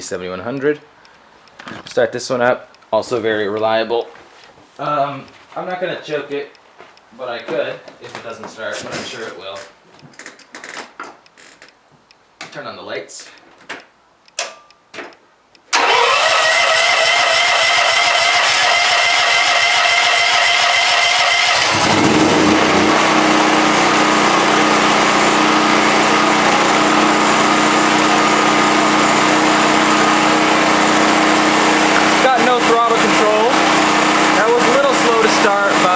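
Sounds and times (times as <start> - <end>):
electric starter cranking engine: 15.7 - 35.9
engine idling: 15.8 - 35.9.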